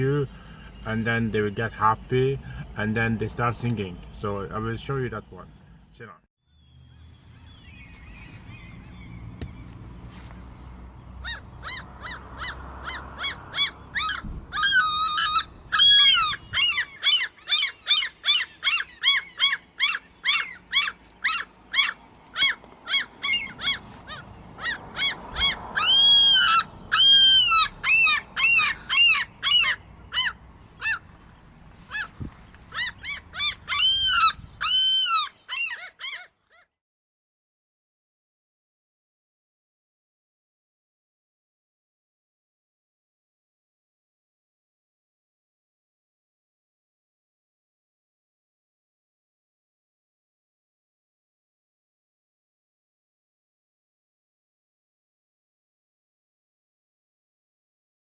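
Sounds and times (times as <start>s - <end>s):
bird giving short arching calls: 11.2s - 31.1s, 31.8s - 36.3s.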